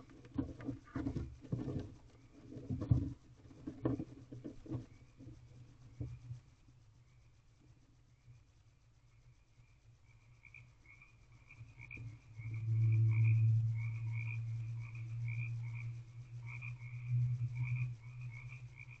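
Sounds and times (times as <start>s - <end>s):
frogs croaking: 3.8s - 19.0s
low rumble: 11.7s - 19.0s.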